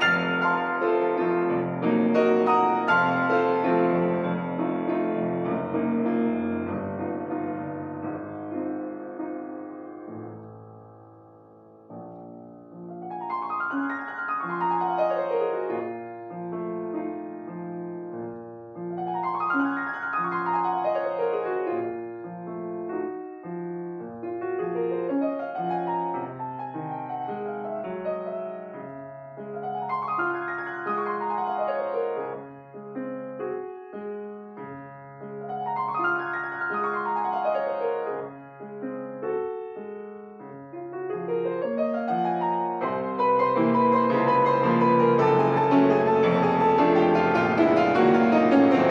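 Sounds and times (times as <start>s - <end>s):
solo piano arpeggios: 0.0s - 48.9s.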